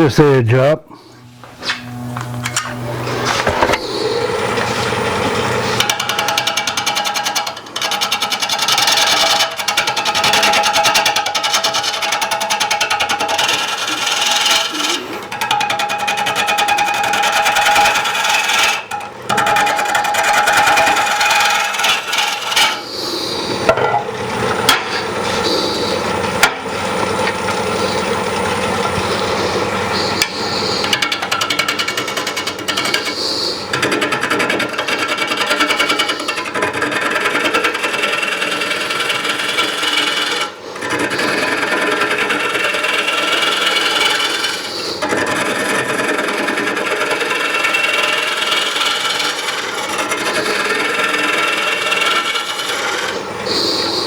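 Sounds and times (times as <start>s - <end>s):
lathe tool scraping wood: 1.0s - 54.0s.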